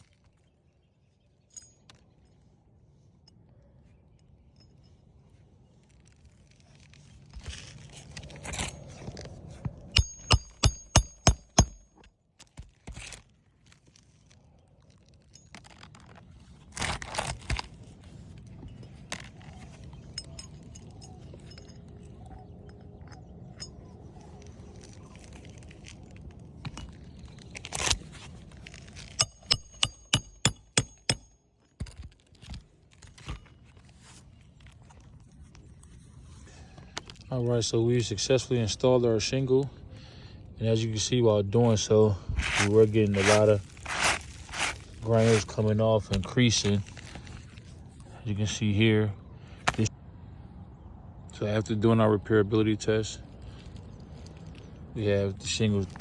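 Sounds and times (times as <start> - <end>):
shingles scraping and crunching: 5.8 - 21.9, 24.0 - 37.3, 41.6 - 48.0
hammer striking roofing nails: 9.9 - 11.9, 29.2 - 32.0.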